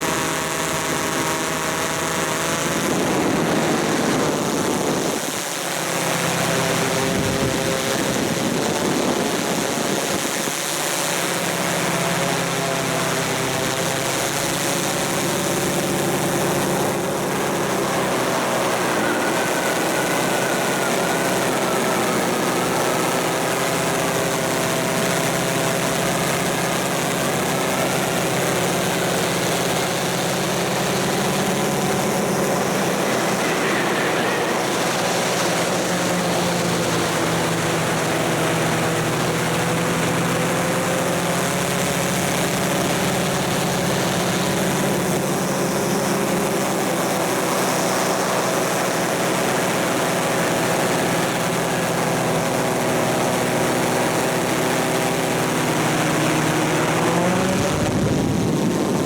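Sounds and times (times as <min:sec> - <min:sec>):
machine running with whining tones: 0:00.0 - 0:59.0.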